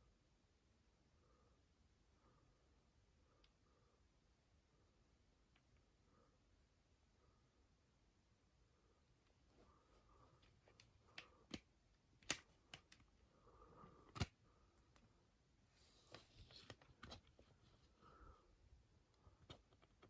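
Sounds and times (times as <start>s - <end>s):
light rustling of packaging: 9.3s - 18.2s
cd case clicks and taps: 10.8s - 13.1s, 14.1s - 14.3s.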